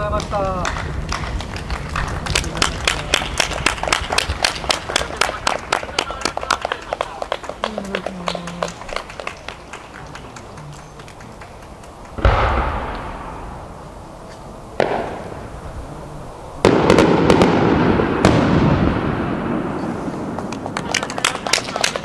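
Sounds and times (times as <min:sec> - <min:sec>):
firework crackle: 0:00.0 - 0:22.0
firework booms echoing: 0:12.1 - 0:14.1, 0:14.7 - 0:20.8.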